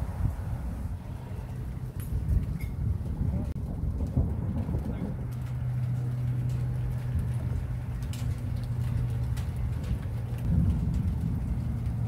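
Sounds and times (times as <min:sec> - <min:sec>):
rain: 0:00.0 - 0:12.0.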